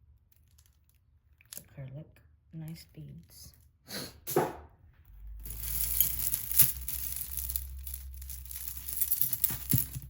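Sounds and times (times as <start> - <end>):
jewelry pieces clicking together: 5.5 - 10.0.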